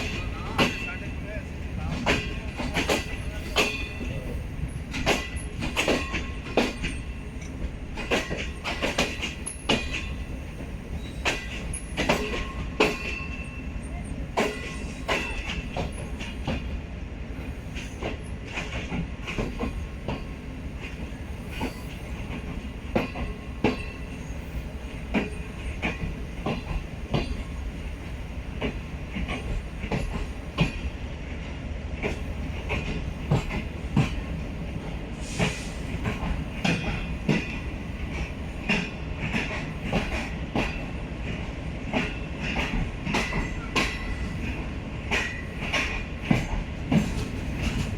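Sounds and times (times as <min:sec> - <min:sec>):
wheels clicking over rail joints: 0:00.0 - 0:16.8, 0:17.5 - 0:47.9
train wheels rumbling on track: 0:00.0 - 0:47.9
faint high wheel squeal: 0:11.0 - 0:12.0.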